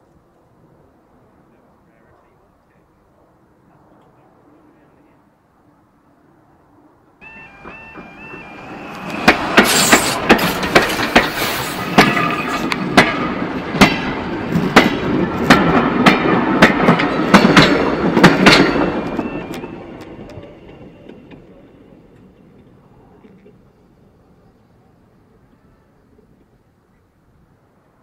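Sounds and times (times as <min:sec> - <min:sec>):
two-tone crossing alarm: 0:07.2 - 0:11.2, 0:18.0 - 0:21.5
train wheels clattering: 0:07.2 - 0:21.5.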